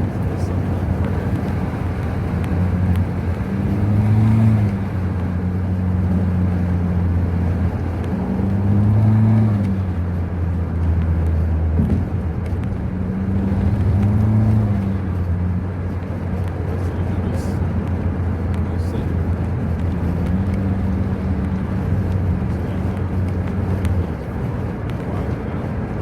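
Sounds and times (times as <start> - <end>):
car engine droning: 0.0 - 26.0.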